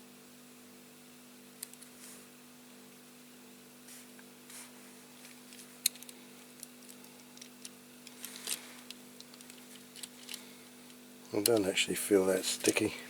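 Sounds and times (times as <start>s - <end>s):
electrical hum: 0.0s - 13.0s
soft rustles: 1.8s - 2.4s, 3.8s - 10.6s.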